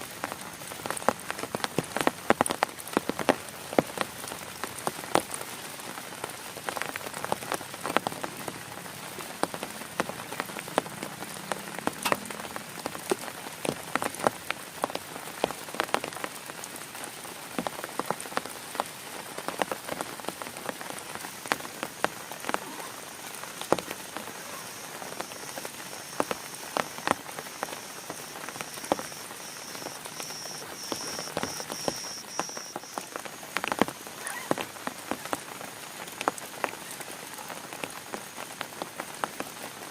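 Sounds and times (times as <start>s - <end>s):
heavy rain on a tent: 0.0s - 39.9s
high rapidly pulsed call: 24.6s - 33.0s.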